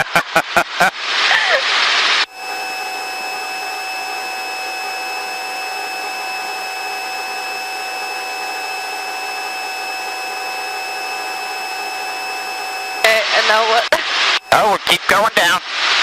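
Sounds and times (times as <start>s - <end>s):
high-pitched rotor drive whine: 2.2s - 15.0s
helicopter cabin noise: 2.3s - 15.3s.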